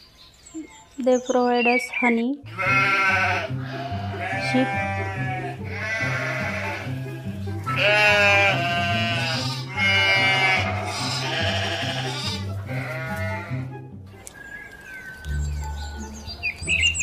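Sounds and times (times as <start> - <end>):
sheep bleating: 2.4 - 13.7
music with bass line: 2.5 - 14.2, 15.2 - 17.0.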